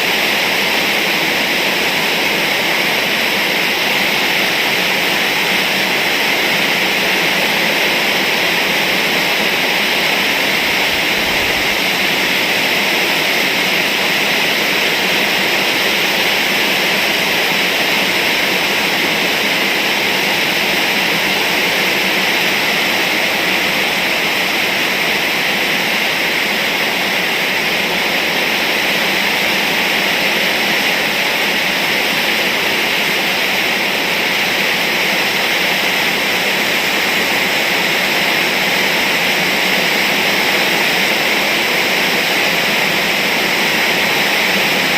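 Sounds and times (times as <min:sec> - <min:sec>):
heavy rain pouring: 0:00.0 - 0:44.9.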